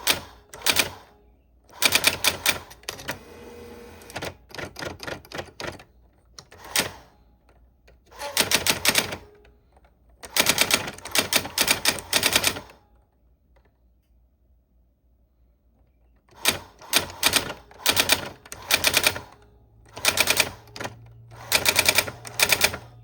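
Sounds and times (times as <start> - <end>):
manual typewriter typing: 0.0 - 1.1, 1.7 - 3.2, 4.0 - 7.2, 8.0 - 9.5, 10.2 - 12.8, 16.3 - 23.0.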